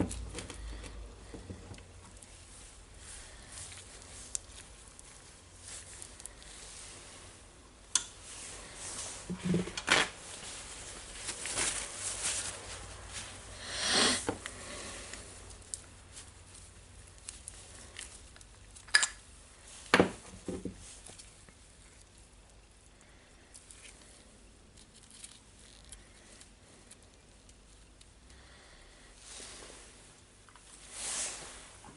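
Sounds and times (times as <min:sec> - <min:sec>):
scrubbing rustle: 0:08.3 - 0:13.5.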